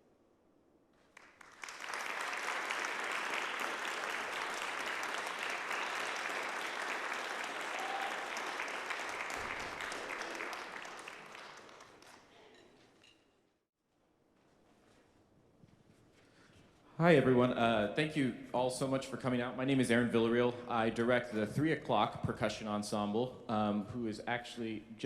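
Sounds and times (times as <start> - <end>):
audience applauding: 1.1 - 12.5.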